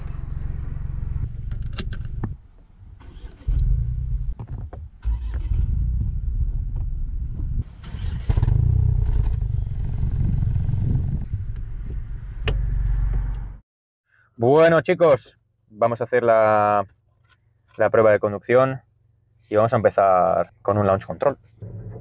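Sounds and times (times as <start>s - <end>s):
car engine running: 0.0s - 2.4s, 8.4s - 13.6s.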